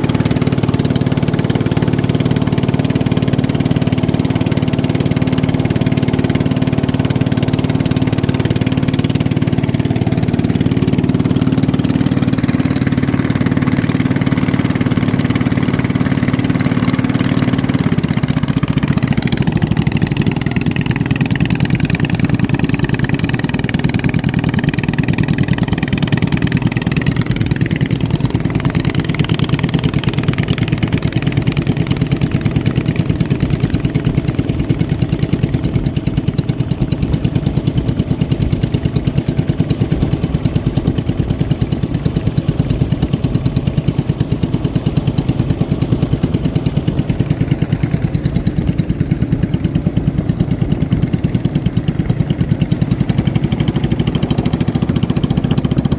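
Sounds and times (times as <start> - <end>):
high-pitched engine whine: 0.0 - 35.7
racing boat engines at high revs: 0.0 - 55.9.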